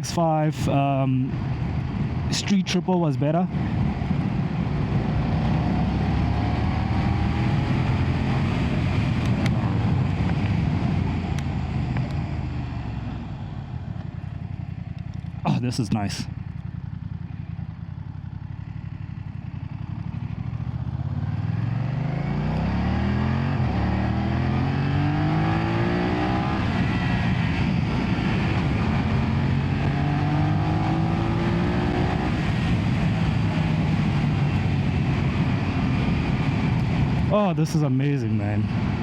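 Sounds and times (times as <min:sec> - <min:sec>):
motorcycle engine accelerating: 0:03.5 - 0:39.0
wind noise: 0:24.8 - 0:39.0.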